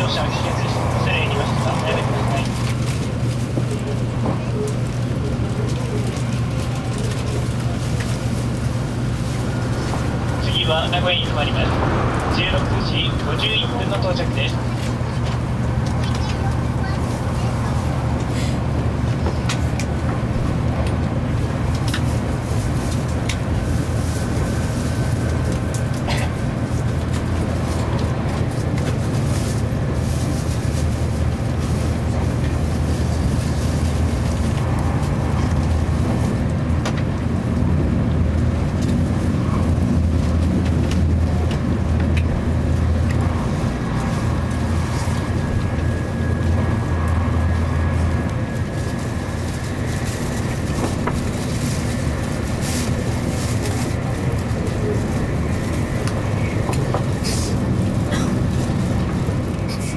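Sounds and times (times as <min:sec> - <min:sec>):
train cabin deep rumble: 0:00.0 - 0:59.9
hiss of wheels and air: 0:57.2 - 0:57.8.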